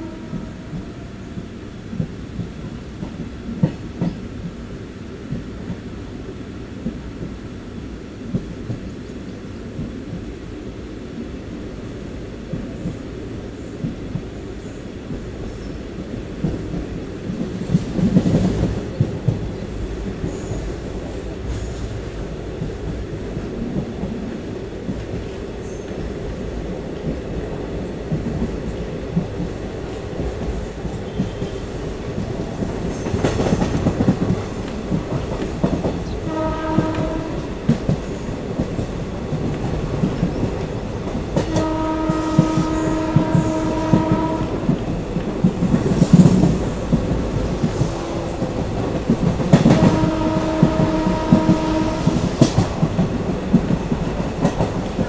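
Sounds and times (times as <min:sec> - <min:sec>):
train horn: 0:00.0 - 0:01.4, 0:31.0 - 0:31.9, 0:36.0 - 0:37.9, 0:41.4 - 0:45.0, 0:47.6 - 0:52.7
train rumbling: 0:00.0 - 0:55.0.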